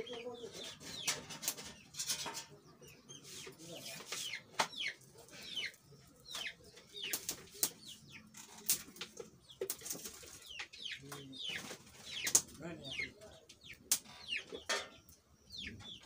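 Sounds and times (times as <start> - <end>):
birds chirping: 0.0 - 16.0
firewood clicking and snapping: 4.1 - 12.6, 13.5 - 15.0.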